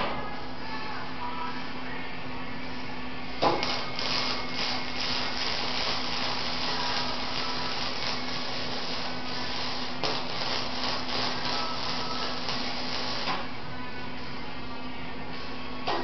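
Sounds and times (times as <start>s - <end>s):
welder hum: 3.2s - 14.5s
welding arc crackling hiss: 3.4s - 13.5s.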